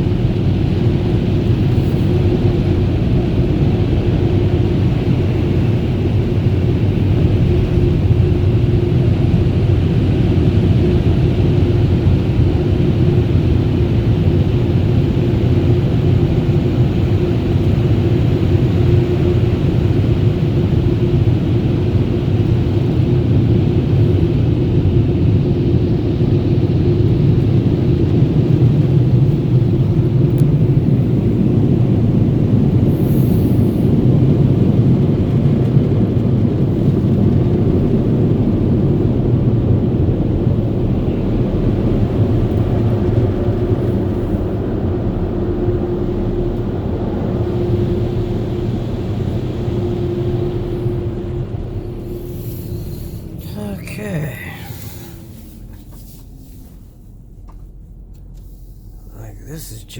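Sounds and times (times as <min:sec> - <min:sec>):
air dryer blowers rumbling: 0:41.4 - 0:53.5
faint steady hum: 0:47.3 - 0:59.9.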